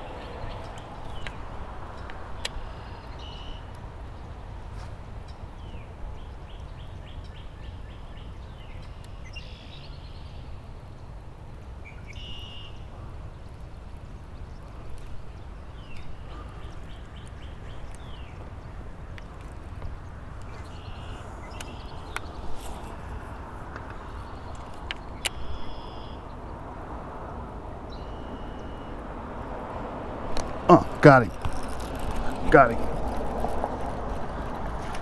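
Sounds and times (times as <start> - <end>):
birds chirping: 0.0 - 26.8, 27.8 - 35.0
bird calls with falling notes: 20.4 - 26.3.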